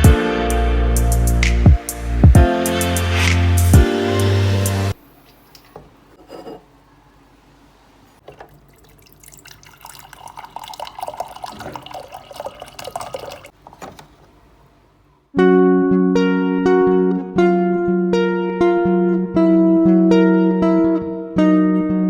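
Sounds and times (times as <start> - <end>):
background music: 0.0 - 5.0
tap water running into sink: 8.2 - 14.1.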